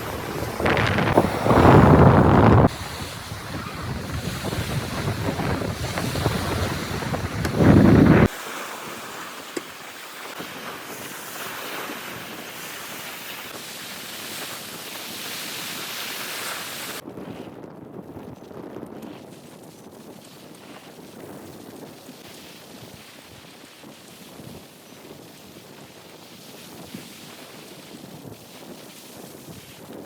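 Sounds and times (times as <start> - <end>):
wind buffeting microphone: 0.0 - 8.3
sea washing: 0.0 - 17.0.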